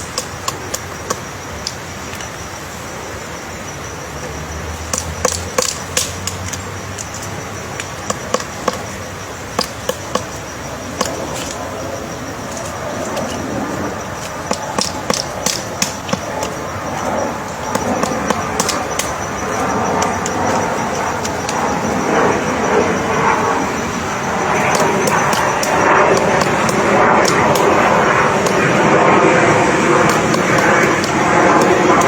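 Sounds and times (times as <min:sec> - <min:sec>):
woodpecker pecking wood: 0:00.0 - 0:02.4, 0:04.2 - 0:32.0.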